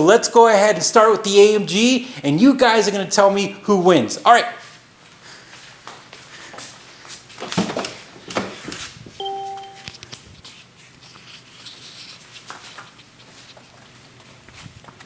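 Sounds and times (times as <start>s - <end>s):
short electronic beep: 9.2s - 9.9s
faint rustling and handling: 9.7s - 15.0s.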